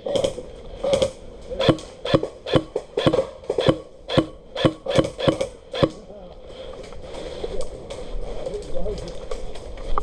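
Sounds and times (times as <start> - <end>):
airsoft gun shots: 0.1 - 6.0.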